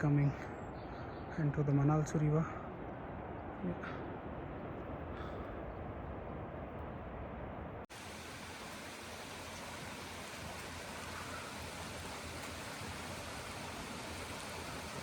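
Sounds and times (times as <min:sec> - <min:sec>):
mountain stream rushing: 0:07.8 - 0:15.0.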